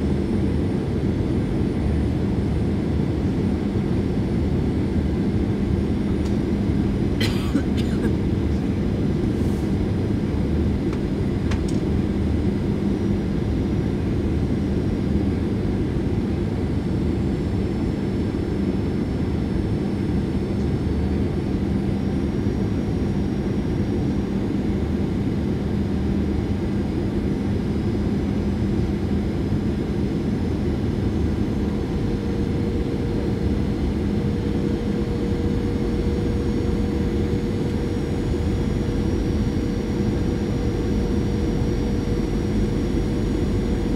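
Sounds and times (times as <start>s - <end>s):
jet engines humming: 0.0s - 43.9s.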